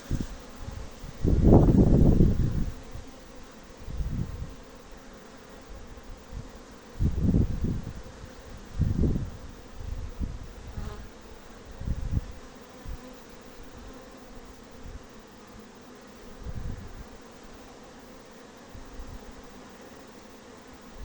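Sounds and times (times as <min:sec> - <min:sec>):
wind buffets on microphone: 0:00.0 - 0:03.0, 0:03.8 - 0:04.6, 0:06.1 - 0:11.0, 0:11.7 - 0:13.1, 0:16.4 - 0:17.1
honeybees buzzing: 0:00.0 - 0:21.0.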